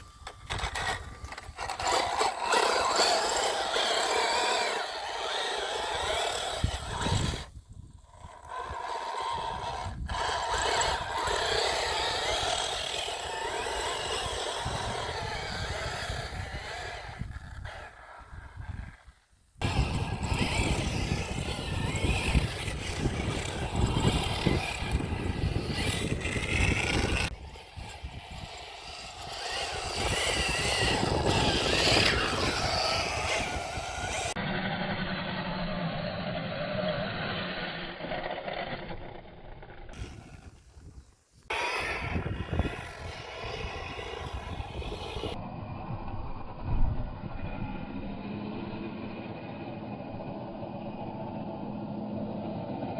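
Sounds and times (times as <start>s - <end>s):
electric motor whine: 0.0s - 18.9s, 19.6s - 40.6s, 41.5s - 52.9s
tyres on rough ground: 0.0s - 52.9s
steady low drone: 43.2s - 52.9s.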